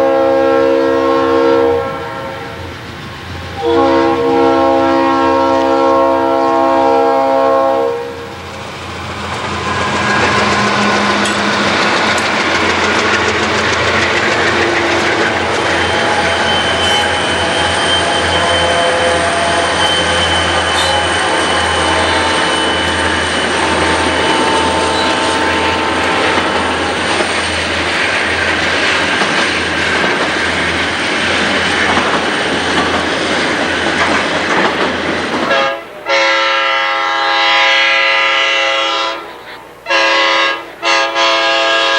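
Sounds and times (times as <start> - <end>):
air horn blowing: 0.0 - 2.7, 3.6 - 8.4, 16.0 - 26.9, 35.5 - 41.9
train wheels rumbling on rails: 0.0 - 41.9
wheel squeal: 13.6 - 26.4.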